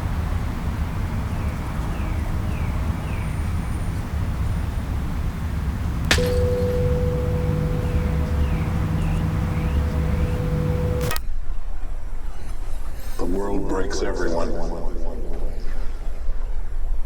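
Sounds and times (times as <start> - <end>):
low rumbling drone: 6.0 - 11.2
sharp ringing metallic hit: 6.1 - 11.2
short falling chirps: 6.1 - 11.2.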